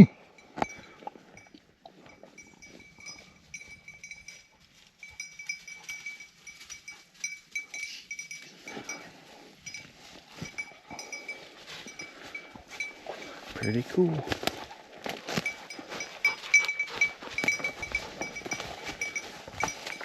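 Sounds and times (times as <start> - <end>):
small bell jingling: 0.4 - 14.2, 15.2 - 20.0
dry leaves rustling: 4.6 - 8.6, 9.2 - 20.0.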